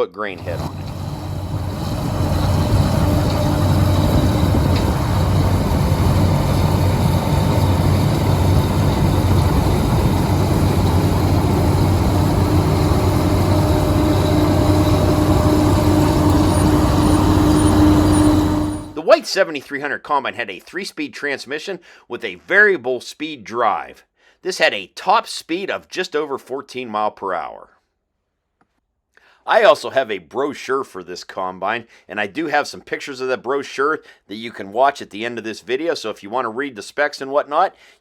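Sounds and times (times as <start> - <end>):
combine harvester engine drone: 0.3 - 19.0.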